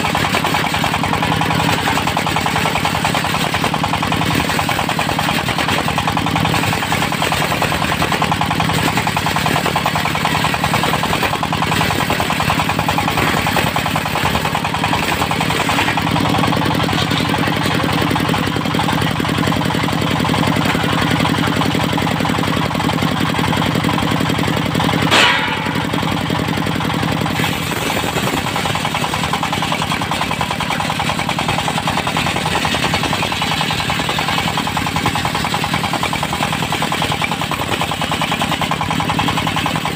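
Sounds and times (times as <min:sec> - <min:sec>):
diesel engine knocking: 0:00.0 - 0:39.9
sharp crack: 0:25.0 - 0:31.0.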